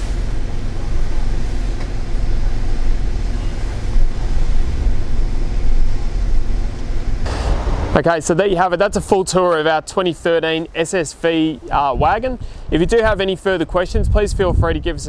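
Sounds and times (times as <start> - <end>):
car engine idling: 0.0 - 8.6.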